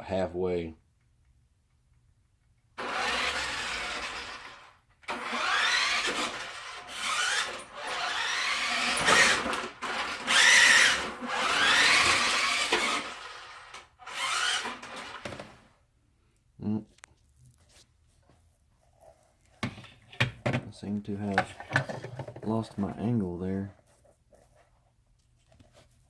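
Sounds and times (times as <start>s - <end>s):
toy truck electric motor whining: 2.8s - 15.7s.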